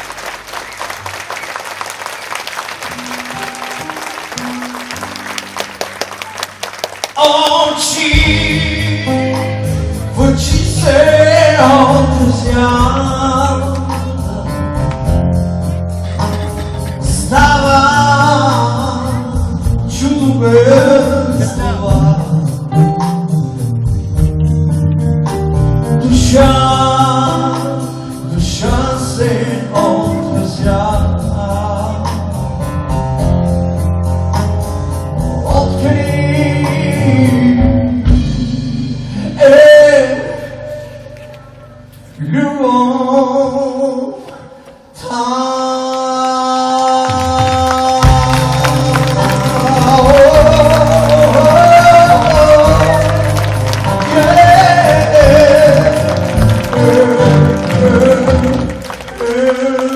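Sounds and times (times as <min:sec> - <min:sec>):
live rock band playing: 0:00.0 - 0:42.2, 0:47.5 - 0:59.9
man singing lead: 0:07.1 - 0:15.2, 0:17.0 - 0:23.9, 0:26.0 - 0:32.5, 0:35.4 - 0:41.2, 0:42.2 - 0:59.9.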